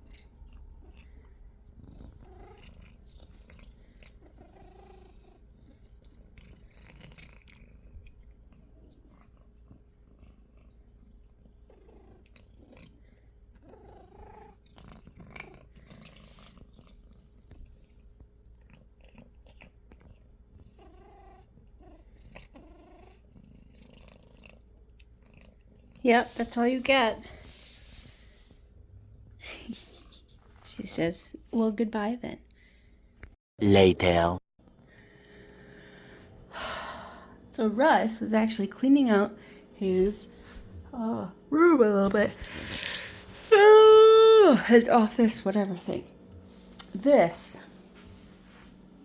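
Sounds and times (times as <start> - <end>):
cat purring: 0.0 - 30.9, 37.1 - 43.5.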